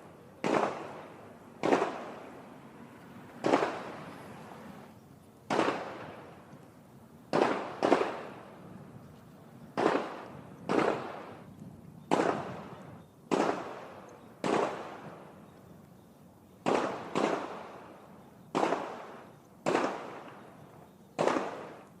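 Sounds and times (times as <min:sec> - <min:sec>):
distant gunshots echoing: 0:00.0 - 0:02.4, 0:03.3 - 0:04.2, 0:05.5 - 0:06.4, 0:07.3 - 0:08.6, 0:09.7 - 0:15.3, 0:16.6 - 0:21.9.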